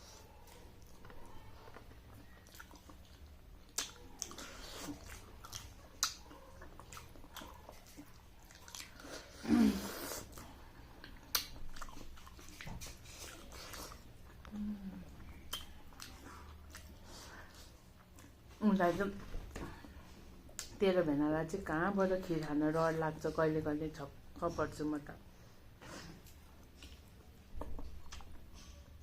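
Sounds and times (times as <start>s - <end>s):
wet chewing and lip smacks: 0.4s - 9.4s, 10.2s - 18.4s, 26.2s - 28.5s.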